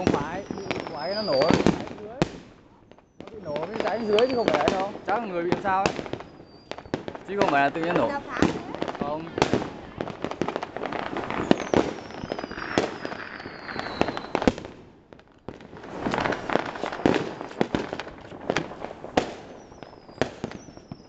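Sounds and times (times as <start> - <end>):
firework whistle sliding down: 0.0 - 1.7
fireworks bangs and crackles: 0.0 - 21.0.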